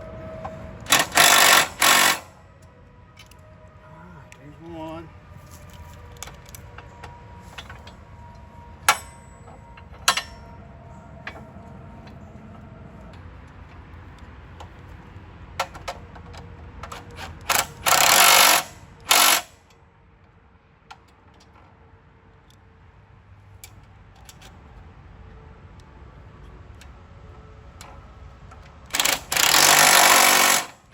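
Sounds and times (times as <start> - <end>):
tools clinking on metal: 8.9 - 10.6.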